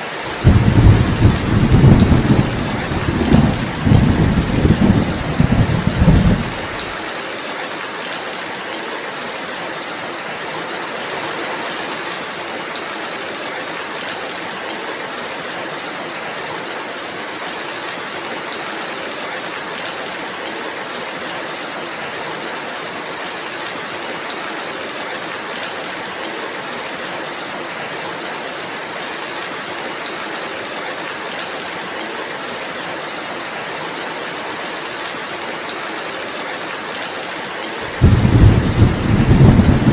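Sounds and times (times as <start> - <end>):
steady rainfall: 0.0 - 39.9
thunder rumble: 0.3 - 6.9, 37.9 - 39.9.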